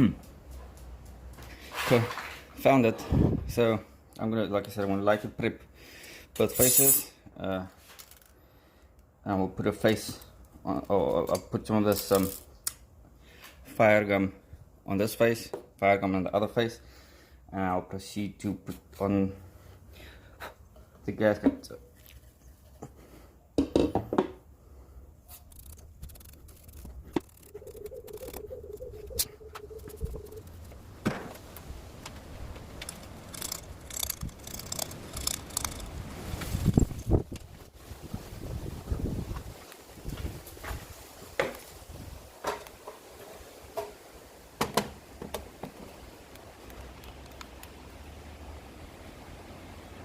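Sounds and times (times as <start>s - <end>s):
hands clicking and scraping on metal: 25.3s - 30.8s, 31.4s - 37.5s.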